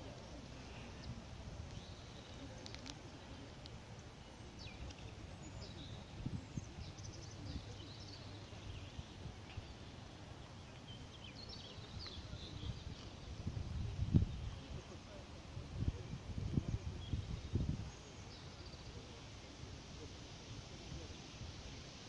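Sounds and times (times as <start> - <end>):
small birds chirping: 0.0 - 22.0
wind rumble on microphone: 4.6 - 9.8, 11.4 - 18.2.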